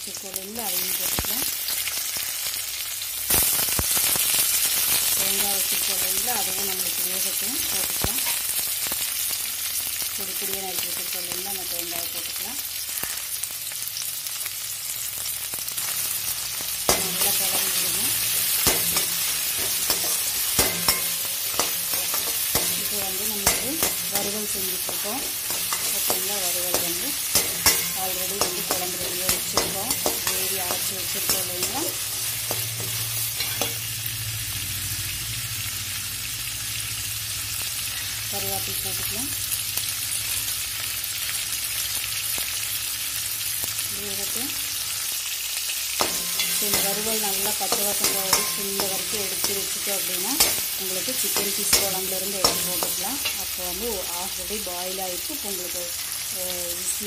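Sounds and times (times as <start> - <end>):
vegetables sizzling in hot oil: 0.0 - 57.0
metal spatula scraping a pan: 15.8 - 33.9, 46.0 - 53.6.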